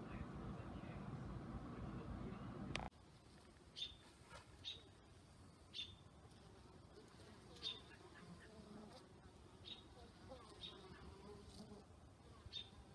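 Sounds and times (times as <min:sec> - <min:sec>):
bird chirping: 0:03.8 - 0:04.0, 0:04.6 - 0:04.9, 0:05.7 - 0:06.0.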